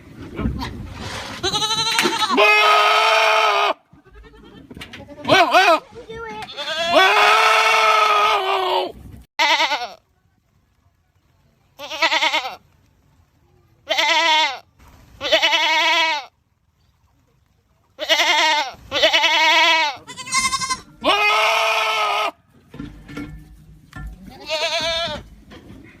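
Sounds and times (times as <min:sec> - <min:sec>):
goats screaming: 0:01.4 - 0:05.8, 0:06.5 - 0:09.8, 0:18.0 - 0:22.4.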